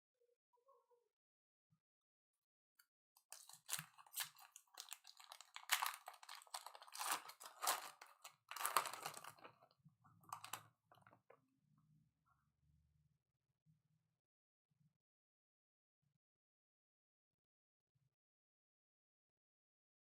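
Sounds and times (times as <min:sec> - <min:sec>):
foil wrapper crinkling: 0:03.3 - 0:09.6, 0:10.3 - 0:10.6
cards being handled: 0:03.4 - 0:09.4.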